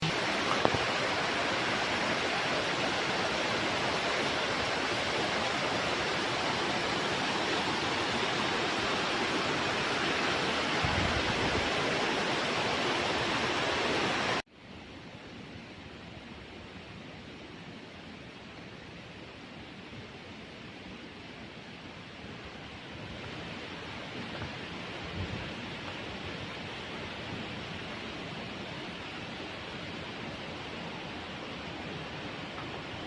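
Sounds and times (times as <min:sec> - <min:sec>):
waterfall roaring: 0:00.0 - 0:14.4, 0:22.0 - 0:33.0.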